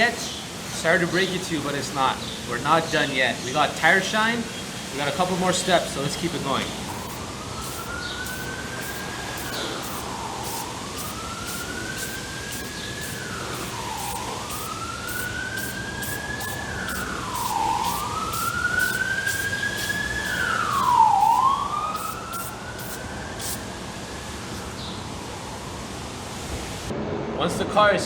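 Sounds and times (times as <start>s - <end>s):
emergency siren wailing: 5.8s - 26.2s.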